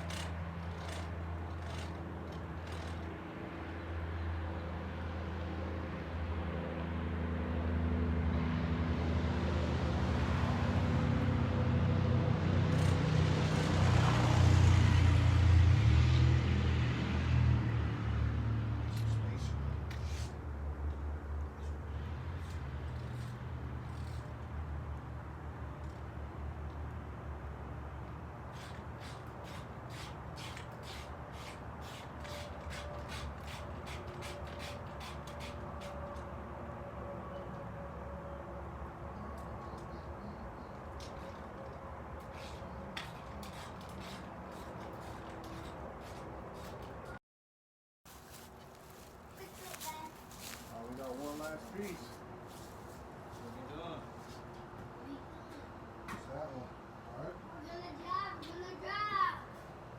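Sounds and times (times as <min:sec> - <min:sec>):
vehicle engine humming: 0:00.0 - 0:30.4, 0:48.1 - 0:54.8
short scraping strokes: 0:19.9 - 0:20.4.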